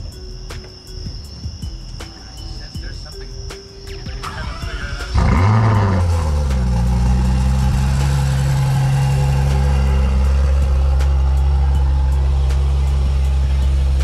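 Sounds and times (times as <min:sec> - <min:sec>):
car engine starting and idling: 0:04.1 - 0:14.0.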